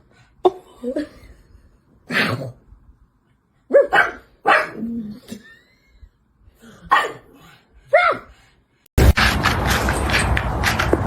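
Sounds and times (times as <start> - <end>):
dog barking: 3.7 - 4.8, 6.9 - 7.3, 7.9 - 8.3.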